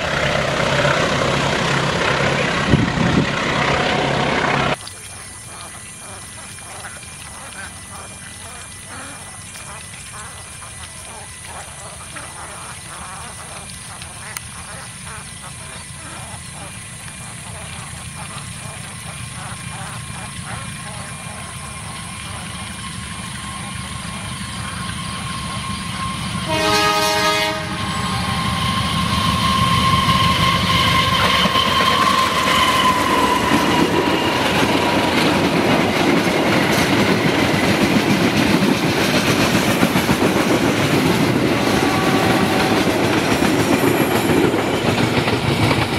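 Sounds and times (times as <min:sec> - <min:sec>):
freight train rumble and clickety-clack: 0:00.0 - 0:09.0, 0:09.6 - 0:45.9
locomotive whine passing: 0:00.0 - 0:45.9
locomotive horn: 0:23.4 - 0:35.6, 0:41.3 - 0:43.5.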